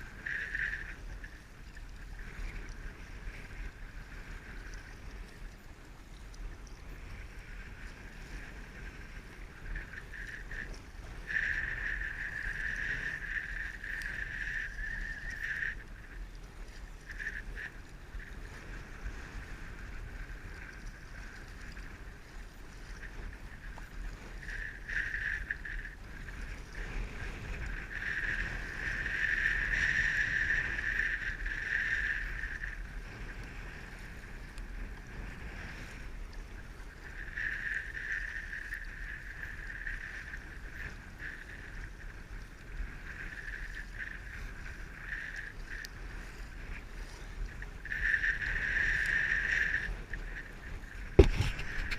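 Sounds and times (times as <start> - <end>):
water splashing along kayak hull: 0.0 - 51.9.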